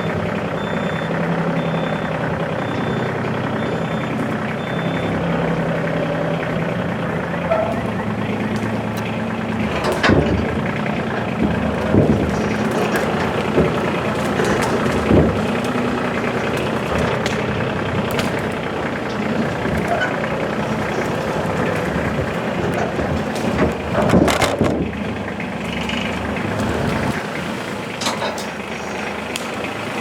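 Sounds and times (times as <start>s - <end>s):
tractor engine running: 0.0s - 30.0s
loud knocks and rattles: 6.4s - 27.3s.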